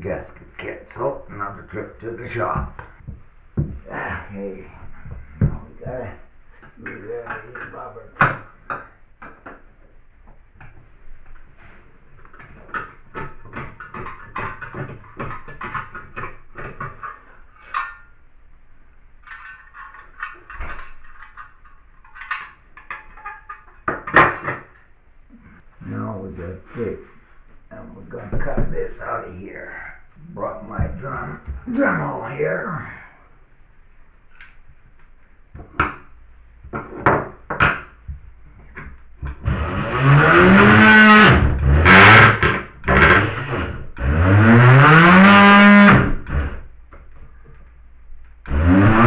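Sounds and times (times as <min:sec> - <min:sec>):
dull knock: 0:02.6 - 0:03.9
hand tools scraping: 0:38.7 - 0:46.6, 0:48.5 - 0:49.0.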